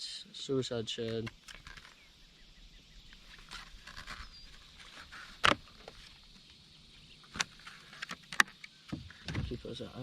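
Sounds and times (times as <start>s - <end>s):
fishing tackle clicks and rustles: 1.0s - 2.1s, 3.2s - 6.5s, 7.2s - 9.6s.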